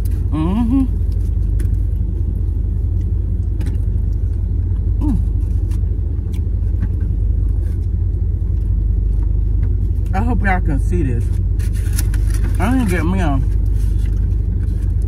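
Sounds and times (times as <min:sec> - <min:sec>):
car running rumble: 0:00.0 - 0:15.0
person humming: 0:00.2 - 0:01.0, 0:05.0 - 0:05.3.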